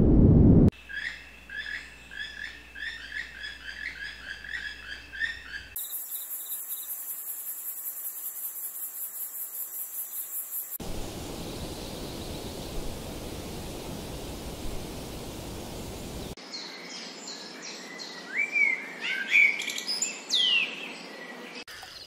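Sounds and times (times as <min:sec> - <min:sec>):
steady rushing noise: 0:00.0 - 0:00.7, 0:10.8 - 0:16.4
insect trill: 0:00.8 - 0:16.4.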